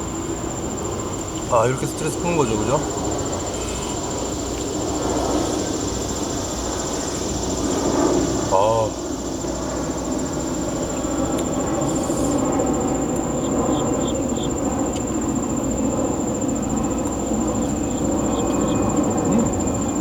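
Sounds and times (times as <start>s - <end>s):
insect trilling: 0.0s - 20.0s.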